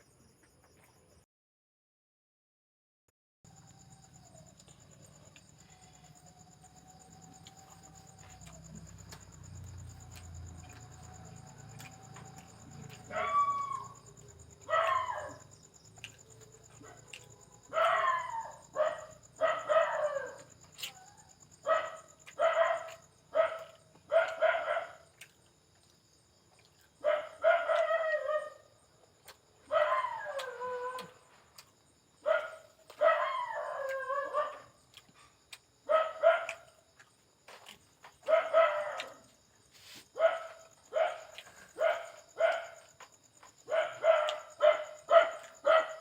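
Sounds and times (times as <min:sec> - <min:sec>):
animal crying out: 0:13.1 - 0:14.0.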